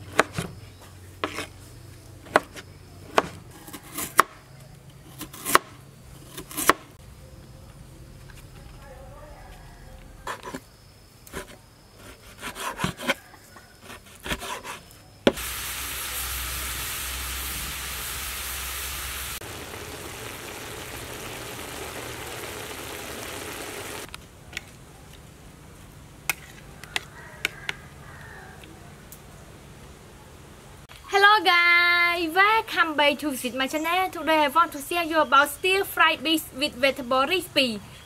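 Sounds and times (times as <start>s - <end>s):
meat and vegetables sizzling: 15.3s - 24.1s.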